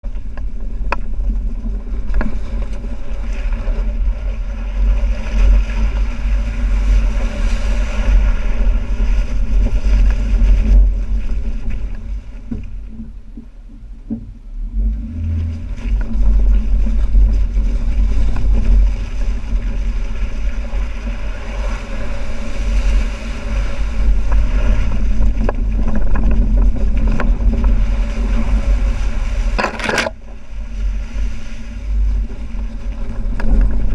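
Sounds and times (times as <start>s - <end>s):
vehicle engine rumbling through water: 0.0s - 33.9s.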